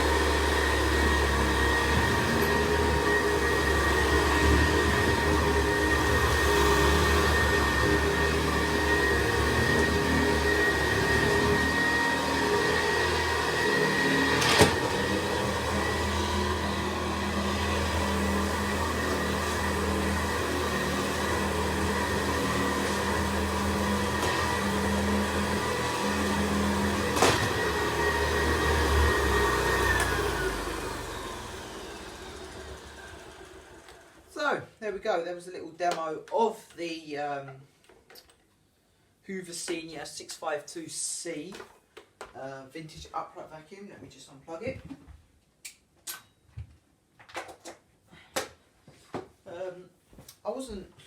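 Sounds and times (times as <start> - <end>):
vacuum cleaner motor whine: 0.0 - 34.4.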